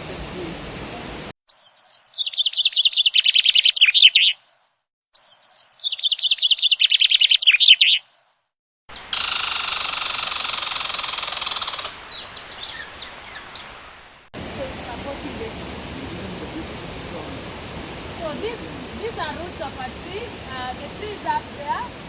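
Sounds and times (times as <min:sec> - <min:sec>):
bird chirps: 0:01.5 - 0:08.3, 0:11.3 - 0:14.3
bird song: 0:01.5 - 0:08.3, 0:12.1 - 0:14.3.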